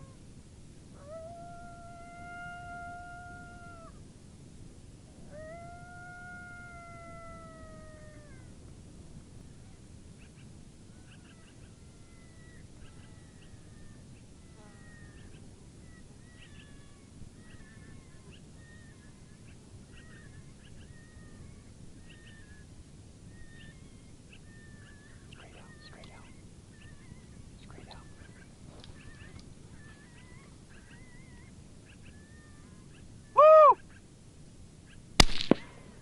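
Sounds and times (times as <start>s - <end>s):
coyote howling and yipping: 0.9s - 4.0s, 5.2s - 8.7s, 10.9s - 22.7s, 23.3s - 27.4s, 28.1s - 34.0s.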